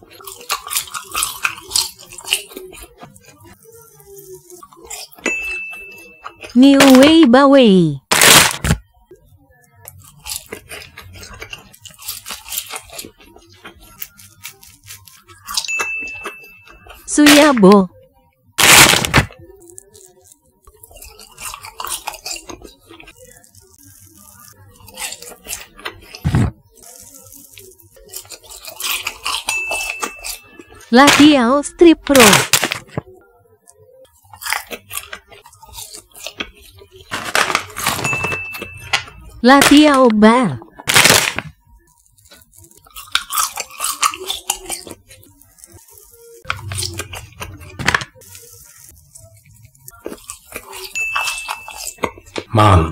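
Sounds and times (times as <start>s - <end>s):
sticky chewing mouth sounds: 0.0s - 5.2s, 9.8s - 15.7s, 18.6s - 30.9s, 32.9s - 38.0s, 40.7s - 52.9s
snack bag rustle: 0.0s - 7.1s, 8.1s - 8.8s, 9.8s - 17.1s, 18.6s - 31.3s, 32.0s - 52.8s
plastic packet crinkling: 8.1s - 8.8s, 18.6s - 31.3s, 32.2s - 33.1s, 34.3s - 39.0s, 40.7s - 52.5s.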